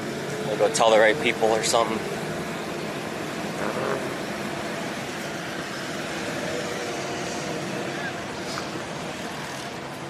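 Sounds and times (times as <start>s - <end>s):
car engines running: 0.0s - 10.0s
faint voices: 6.2s - 9.8s.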